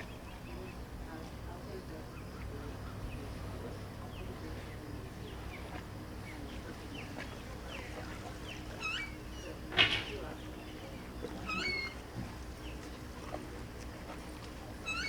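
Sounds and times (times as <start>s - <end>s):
seagulls calling: 11.4s - 12.0s, 14.8s - 15.0s.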